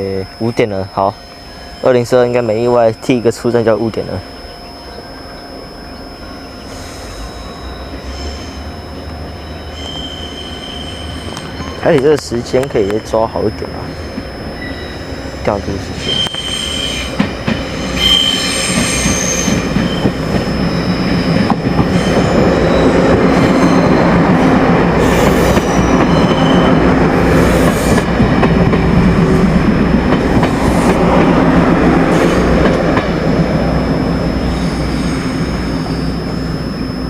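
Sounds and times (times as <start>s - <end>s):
high-pitched wheel squeal: 4.2s - 28.0s, 33.9s - 37.0s
train wheels rumbling on rails: 6.2s - 36.4s.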